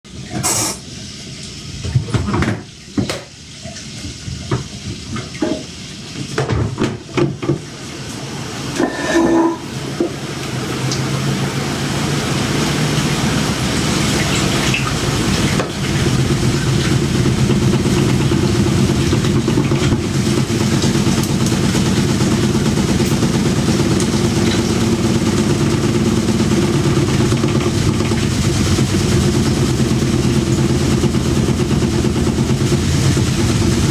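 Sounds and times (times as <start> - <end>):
washing machine spin hum and rattle: 0.1 - 33.9
washing machine knocks and thuds: 1.8 - 3.3, 4.4 - 7.7, 14.5 - 33.9.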